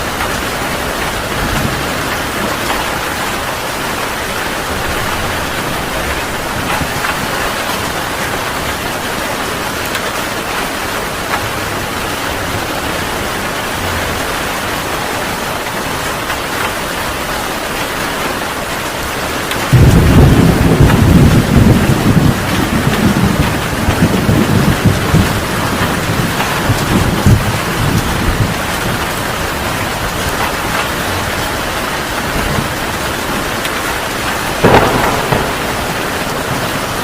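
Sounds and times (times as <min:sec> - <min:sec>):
heavy rain falling: 0:00.0 - 0:37.0
deep thunder rumble: 0:19.7 - 0:30.3, 0:34.6 - 0:37.0.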